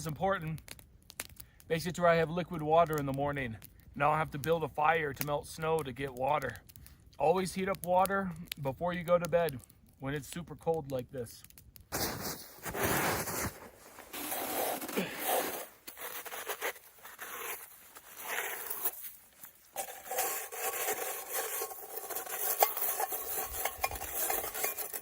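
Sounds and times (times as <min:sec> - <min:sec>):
metal pot being scraped: 0:12.0 - 0:25.0.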